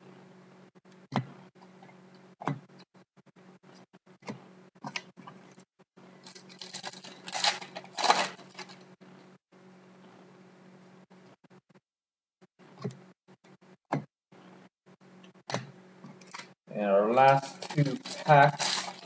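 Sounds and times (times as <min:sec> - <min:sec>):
cards rustling and scraping: 0:06.2 - 0:08.8, 0:17.2 - 0:19.0.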